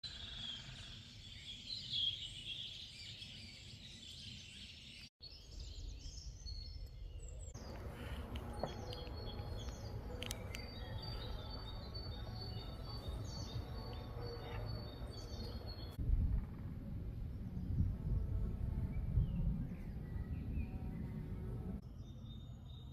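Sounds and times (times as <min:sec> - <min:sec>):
birds singing and chirping: 0:00.0 - 0:16.0, 0:17.2 - 0:22.9
downward-sweeping bird chirps: 0:00.1 - 0:16.0
low background rumble: 0:05.9 - 0:22.9.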